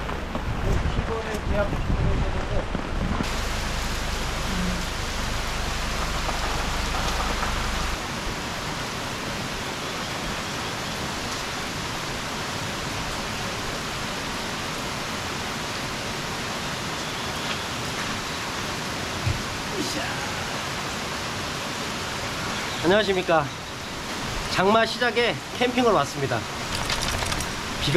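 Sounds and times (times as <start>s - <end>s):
heavy rain pouring: 0.0s - 27.9s
low rumble: 1.9s - 8.7s.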